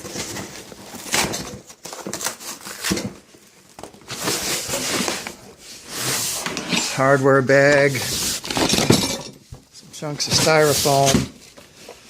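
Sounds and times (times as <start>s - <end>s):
cardboard flaps rustling and scraping: 0.0s - 12.0s
contents knocking and clicking: 8.4s - 11.4s.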